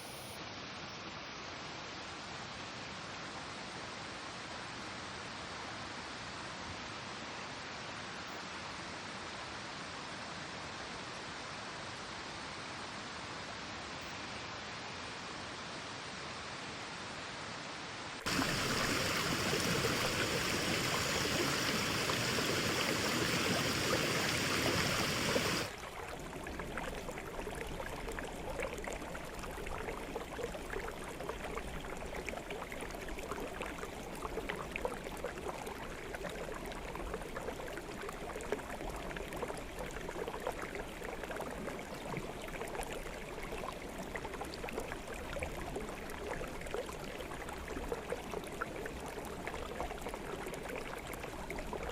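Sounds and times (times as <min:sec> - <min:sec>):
stream water flowing: 0:18.2 - 0:51.9.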